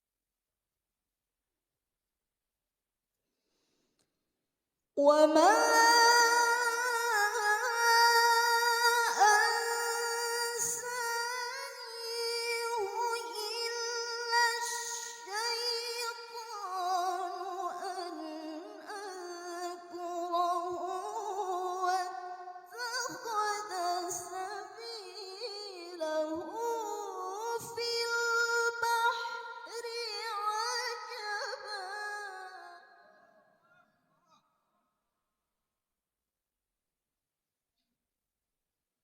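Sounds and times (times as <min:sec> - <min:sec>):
woman reciting melodically: 0:05.0 - 0:33.3.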